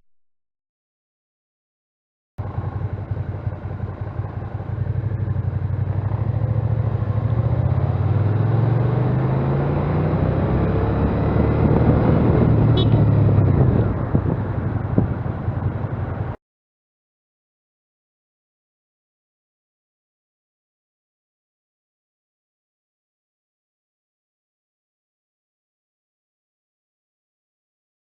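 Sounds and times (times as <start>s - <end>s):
motorcycle engine accelerating: 2.4s - 16.4s
wind and road noise: 2.4s - 16.4s.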